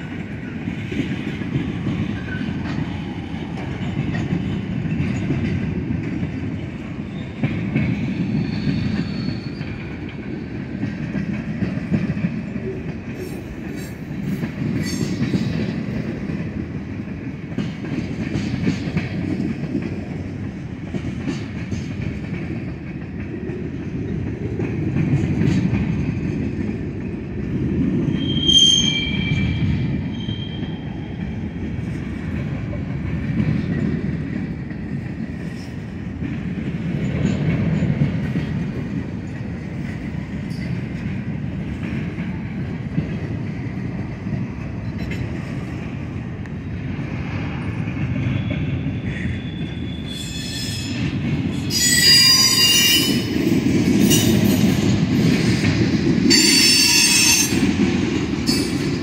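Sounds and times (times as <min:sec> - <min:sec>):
wheels clicking over rail joints: 0:00.1 - 0:28.3
high-pitched wheel squeal: 0:08.4 - 0:09.8, 0:28.2 - 0:30.8, 0:48.4 - 0:51.0, 0:51.7 - 0:53.2.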